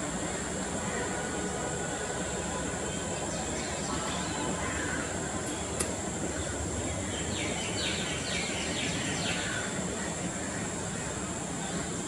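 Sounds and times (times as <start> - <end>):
outdoor background rumble and hiss: 0.0 - 12.0.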